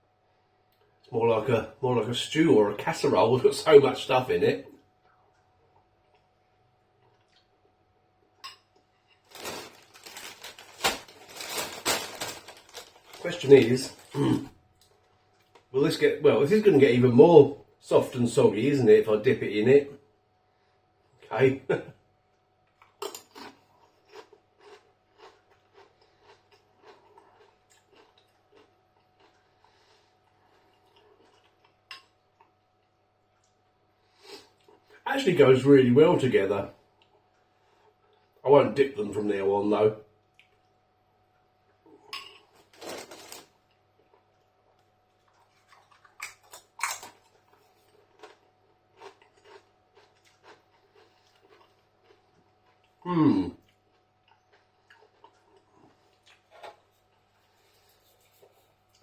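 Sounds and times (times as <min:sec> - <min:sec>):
faint chewing of chips: 0:05.0 - 0:15.7, 0:22.4 - 0:35.0, 0:40.2 - 0:59.0.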